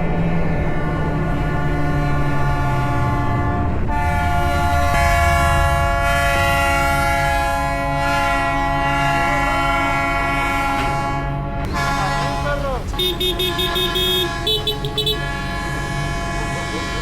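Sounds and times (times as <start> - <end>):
multi-note air horn chord: 3.4 - 17.0.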